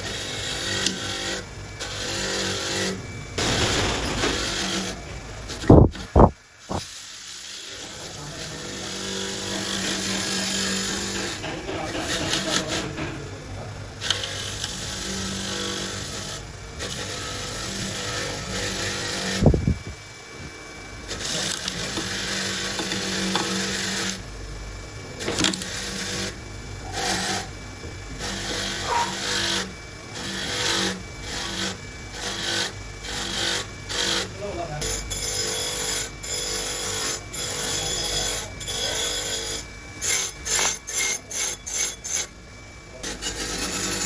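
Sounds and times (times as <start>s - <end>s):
machine hum: 0.0s - 44.0s
harsh scraping bursts: 2.5s - 6.9s, 7.8s - 13.4s.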